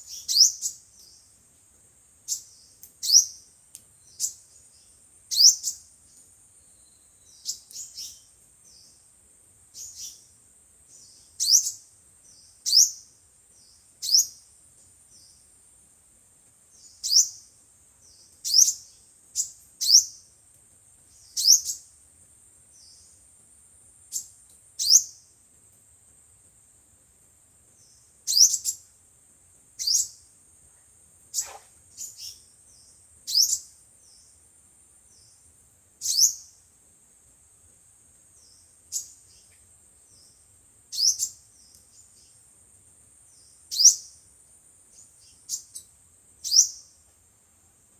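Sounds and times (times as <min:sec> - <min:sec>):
sunbird chirps: 0:00.0 - 0:15.8, 0:16.6 - 0:20.4, 0:21.0 - 0:25.4, 0:27.6 - 0:29.0, 0:29.7 - 0:37.2, 0:37.9 - 0:47.1
faint high hiss: 0:00.0 - 0:47.9.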